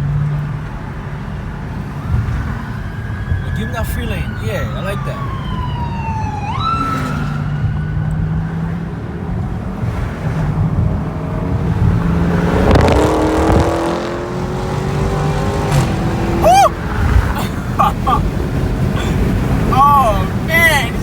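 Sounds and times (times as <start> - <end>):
car engine droning: 0.0 - 21.0
road noise: 0.0 - 21.0
engine accelerating: 9.6 - 17.4.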